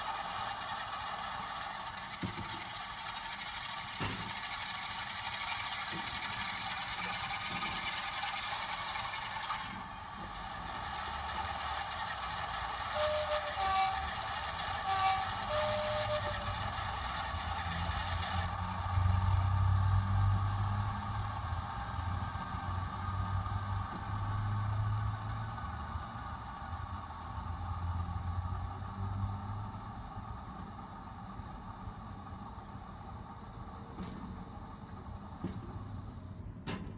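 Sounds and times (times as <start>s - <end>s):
model locomotive engine sound: 0.0s - 36.9s
two-tone train horn: 12.9s - 14.1s, 14.8s - 16.6s.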